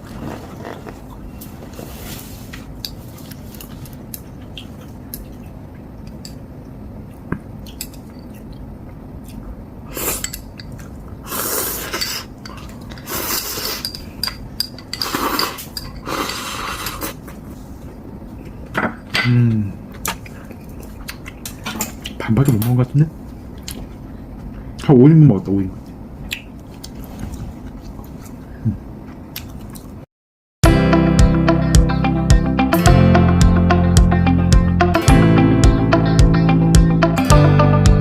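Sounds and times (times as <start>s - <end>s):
noodle slurping: 11.2s - 12.3s
utensils clinking on bowl: 11.8s - 16.5s.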